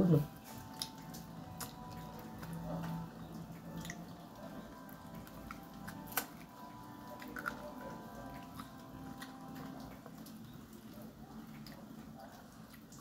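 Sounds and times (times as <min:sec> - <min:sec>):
person chewing and biting: 0:05.0 - 0:10.4.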